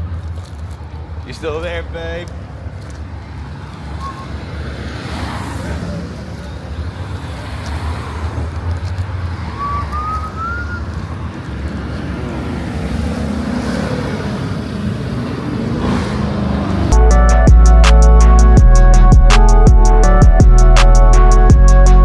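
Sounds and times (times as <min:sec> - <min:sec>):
car engine rumbling: 0:00.0 - 0:22.0
short rising whistle: 0:04.0 - 0:04.4, 0:09.5 - 0:11.1.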